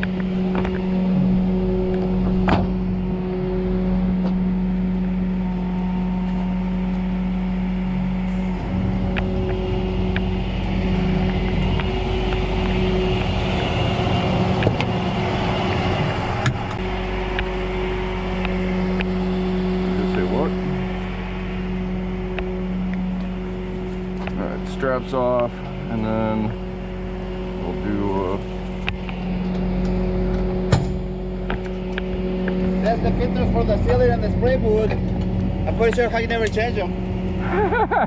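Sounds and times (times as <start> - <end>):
tow truck engine running: 0.0 - 38.0.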